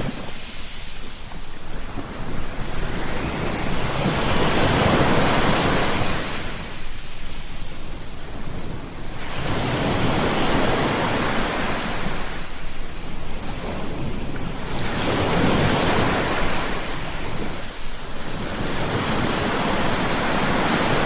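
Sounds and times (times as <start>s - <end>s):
ocean waves breaking: 0.0s - 21.0s.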